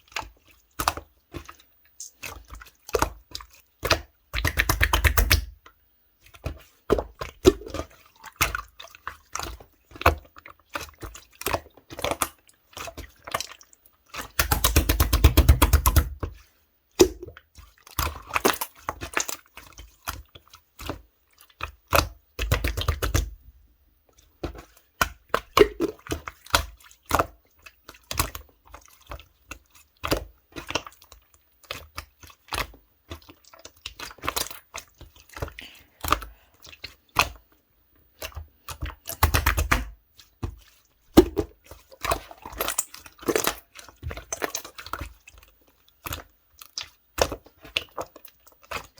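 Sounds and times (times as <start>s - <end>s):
rapid popping of slime: 4.4s - 5.5s, 14.3s - 16.3s, 39.1s - 39.9s, 41.2s - 41.6s.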